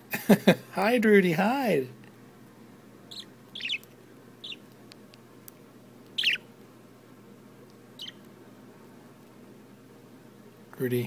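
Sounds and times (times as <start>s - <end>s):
bird chirping: 3.1s - 4.7s, 6.1s - 6.5s, 8.0s - 8.3s.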